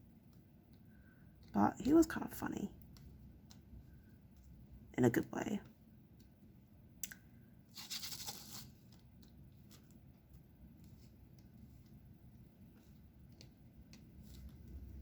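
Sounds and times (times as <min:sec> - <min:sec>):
short scratchy rustle: 0:07.7 - 0:08.8.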